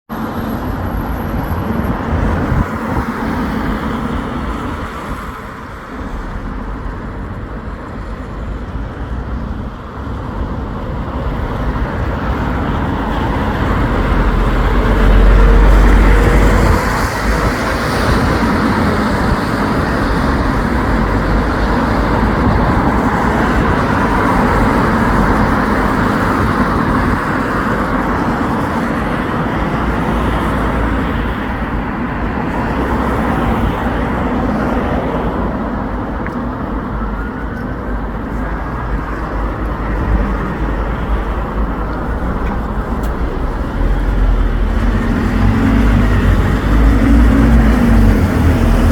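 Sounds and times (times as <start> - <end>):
road traffic passing: 0.1 - 48.9
vehicle passing close: 42.1 - 48.9.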